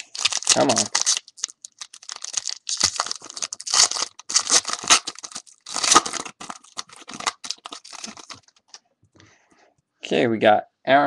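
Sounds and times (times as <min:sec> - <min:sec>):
card pack wrapper tearing and crinkling: 0:00.0 - 0:08.6.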